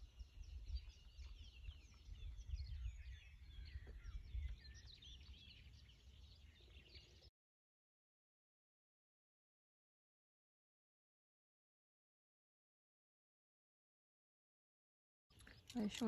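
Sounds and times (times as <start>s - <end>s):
songbirds chirping: 0.0s - 7.3s, 15.3s - 16.0s.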